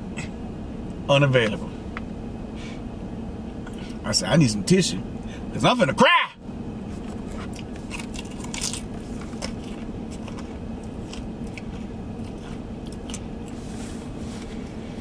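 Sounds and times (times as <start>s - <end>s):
steady low hum: 0.0s - 15.0s
person chewing crunchy food: 6.9s - 14.2s.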